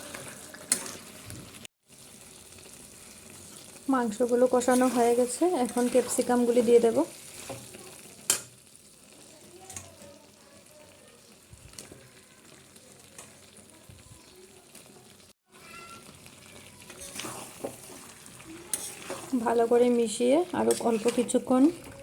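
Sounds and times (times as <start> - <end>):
spatula stirring and scraping: 0.0 - 10.2, 15.6 - 22.0
food sizzling in a pan: 0.0 - 22.0.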